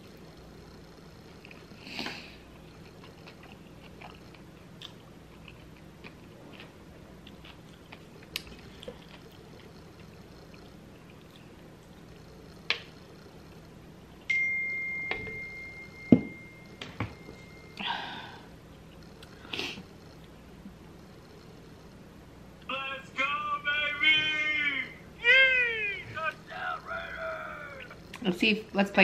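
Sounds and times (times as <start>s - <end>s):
person chewing food: 1.4s - 14.3s
steady high tone: 22.7s - 28.0s.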